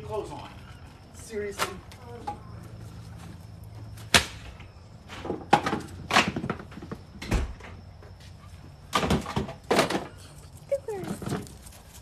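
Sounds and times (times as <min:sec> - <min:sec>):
items knocking being set down: 0:05.1 - 0:07.5, 0:08.9 - 0:10.2.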